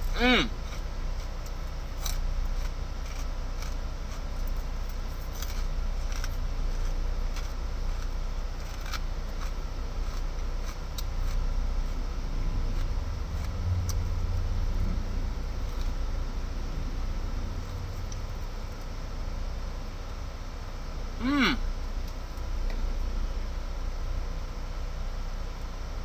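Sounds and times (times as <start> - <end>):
person chewing crunchy food: 0.0 - 18.9.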